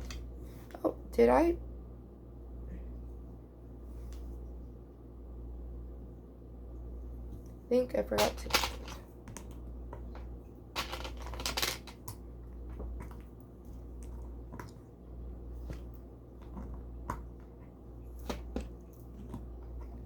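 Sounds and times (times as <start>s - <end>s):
plastic pieces clicking and rattling: 8.2s - 9.0s, 10.8s - 12.2s.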